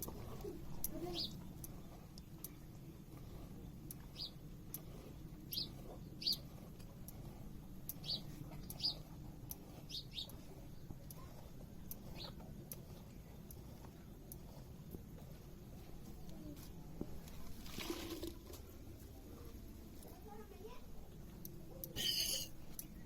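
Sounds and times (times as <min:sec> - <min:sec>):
small bird chirping: 0:04.1 - 0:04.4, 0:05.5 - 0:06.4, 0:08.0 - 0:09.0, 0:09.9 - 0:10.4.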